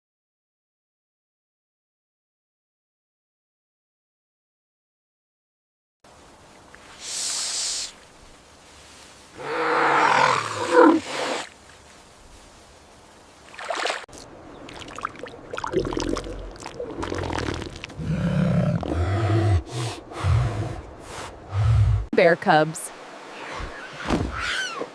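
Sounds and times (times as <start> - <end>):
elephant low rumbling: 15.7 - 22.1.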